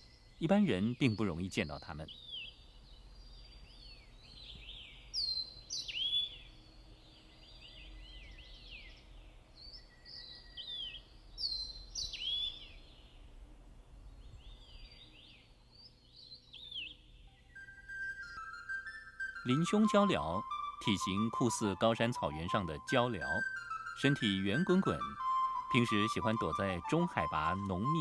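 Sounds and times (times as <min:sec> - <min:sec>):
bird singing whistled phrases: 0:03.3 - 0:06.5, 0:09.6 - 0:13.0, 0:16.5 - 0:28.0.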